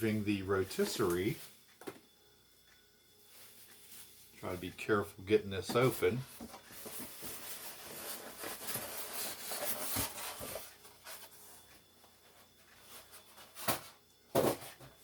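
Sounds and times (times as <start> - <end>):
cardboard scraping: 5.8 - 11.4.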